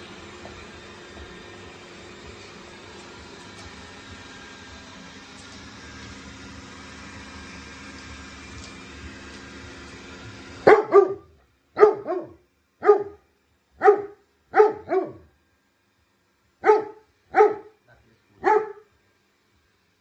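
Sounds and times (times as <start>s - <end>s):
dog barking: 10.7s - 13.2s, 13.8s - 15.3s, 16.6s - 17.8s, 18.4s - 18.9s.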